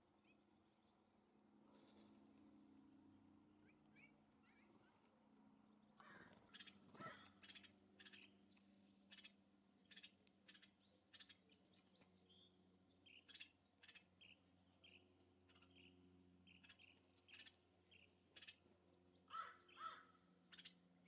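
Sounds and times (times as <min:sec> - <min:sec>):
harsh bird call: 0:06.0 - 0:07.6
bird chirps: 0:06.0 - 0:20.8.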